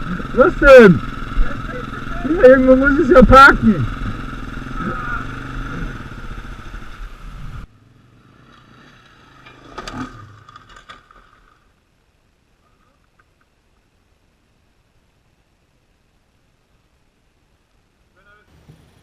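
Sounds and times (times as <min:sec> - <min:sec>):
dirt bike engine running: 0:00.0 - 0:11.6.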